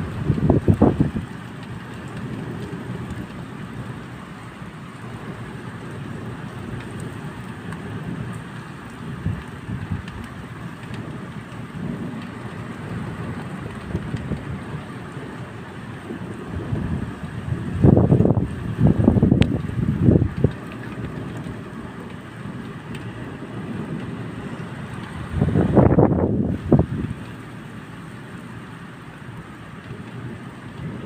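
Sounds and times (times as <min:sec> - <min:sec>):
steady rain falling: 0:00.0 - 0:31.0
low rumbles: 0:16.6 - 0:27.4.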